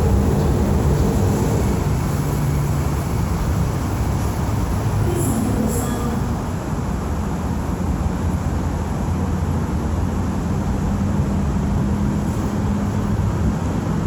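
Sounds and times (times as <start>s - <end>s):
rumble of passing vehicles: 0.0s - 14.0s.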